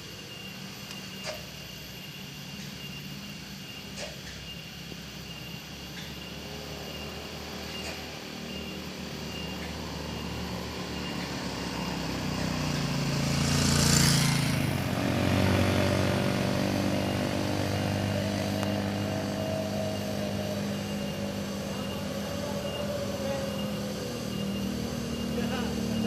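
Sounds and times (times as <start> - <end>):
motorcycle engine passing: 6.5 - 26.0.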